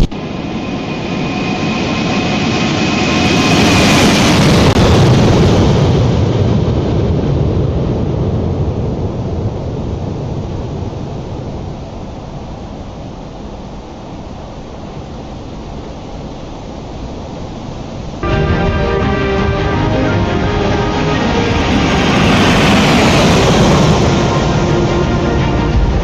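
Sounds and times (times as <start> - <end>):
jet airliner engines passing: 0.0 - 11.5, 18.2 - 26.0.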